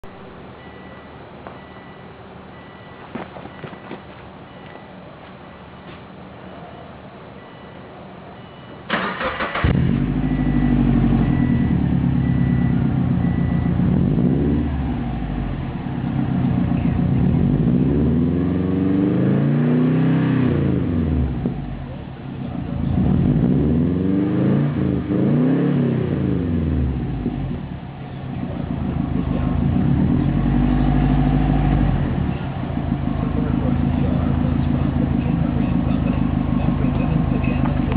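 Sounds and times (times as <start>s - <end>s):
car engine idling and revving: 8.9s - 37.9s
car engine starting: 8.9s - 37.9s.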